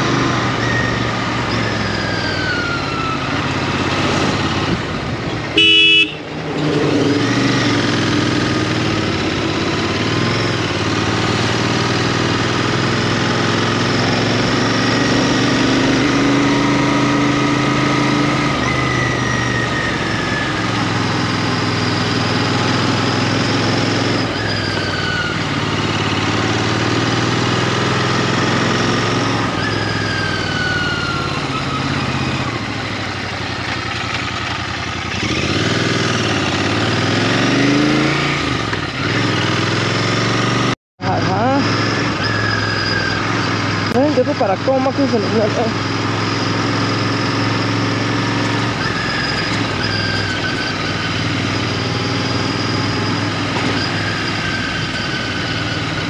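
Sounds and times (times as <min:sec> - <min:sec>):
motorcycle engine running: 0:00.0 - 0:56.0
vehicle horn honking: 0:05.5 - 0:06.3.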